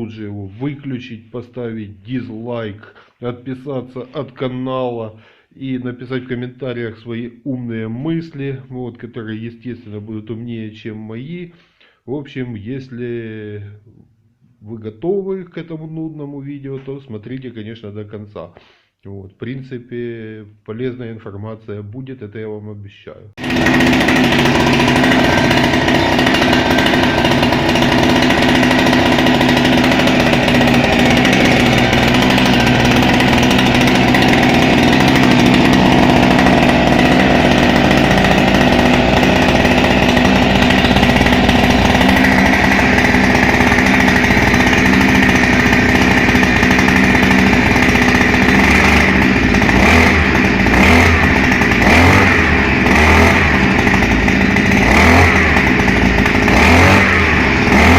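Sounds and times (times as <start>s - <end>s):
two-stroke engine running: 23.4s - 57.9s.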